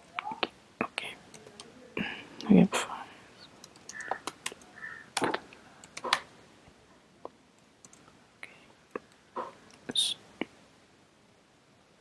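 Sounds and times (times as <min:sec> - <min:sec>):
computer keyboard keys clicking: 0:03.6 - 0:06.2.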